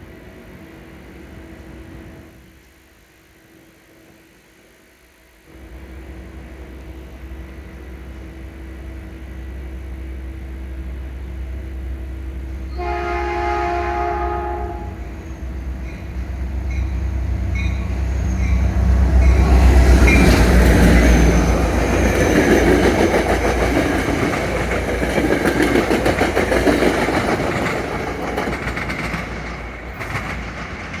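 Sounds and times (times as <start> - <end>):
train horn chord: 12.6 - 15.2
wheels clicking over rail joints: 20.0 - 31.0.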